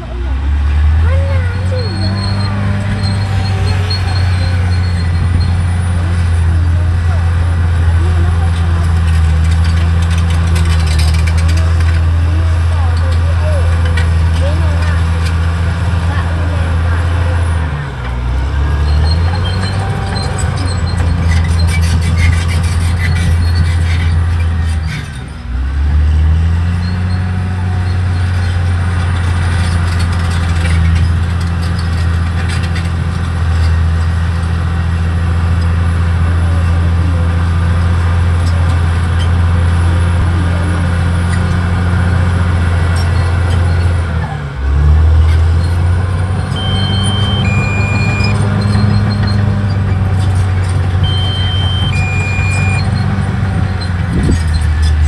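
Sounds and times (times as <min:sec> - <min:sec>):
bulldozer diesel engine under load: 0:00.0 - 0:55.0.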